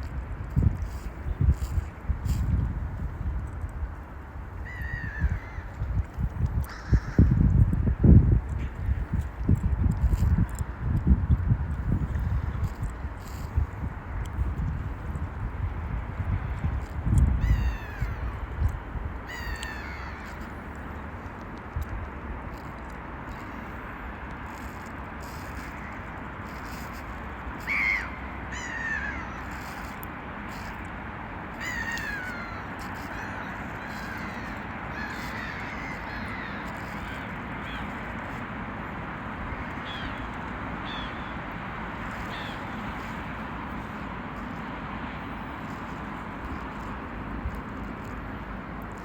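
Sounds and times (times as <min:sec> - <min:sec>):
steady background noise: 0:00.0 - 0:49.0
gulls calling: 0:25.4 - 0:30.8, 0:31.5 - 0:44.7.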